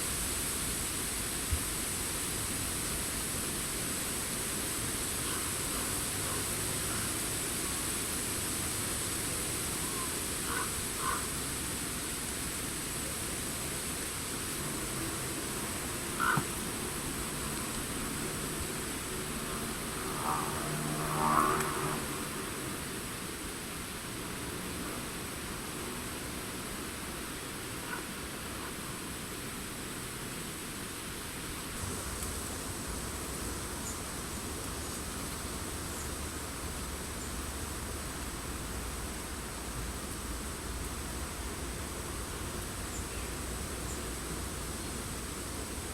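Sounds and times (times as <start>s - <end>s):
wind rustling leaves: 0.0s - 45.9s
distant bird calls: 9.8s - 11.3s, 16.1s - 16.7s.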